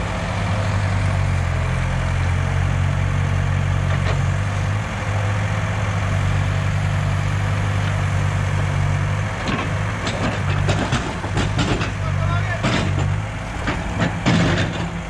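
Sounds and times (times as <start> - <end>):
diesel engine running: 0.0 - 15.0
short knocks and clanks: 9.4 - 15.0.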